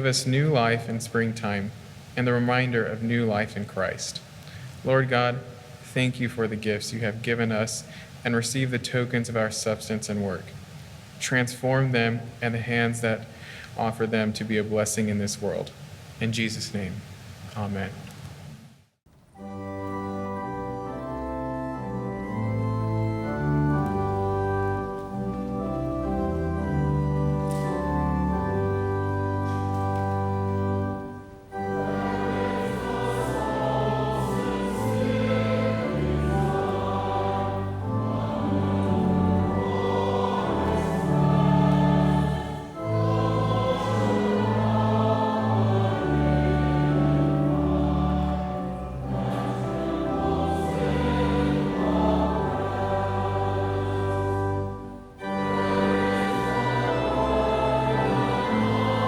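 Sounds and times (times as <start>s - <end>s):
organ accompaniment: 19.3s - 59.0s
choir singing a hymn: 20.4s - 29.2s, 30.0s - 59.0s.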